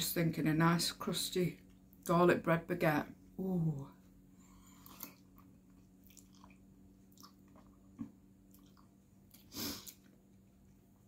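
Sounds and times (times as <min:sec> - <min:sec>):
faint steady hum: 0:00.0 - 0:11.0
person chewing with wet clicks: 0:04.7 - 0:10.2.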